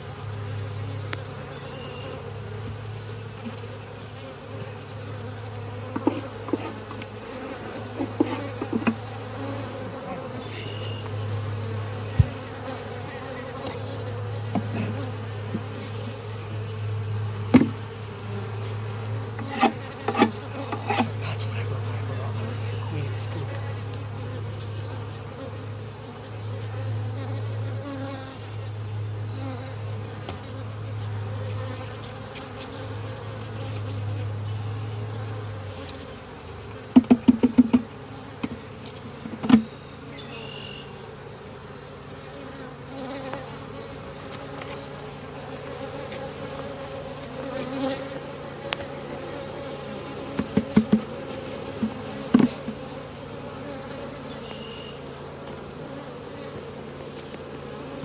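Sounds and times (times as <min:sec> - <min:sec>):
honeybees buzzing: 0:00.0 - 0:58.0
sharp knocks: 0:37.0 - 0:38.6, 0:51.8 - 0:52.8.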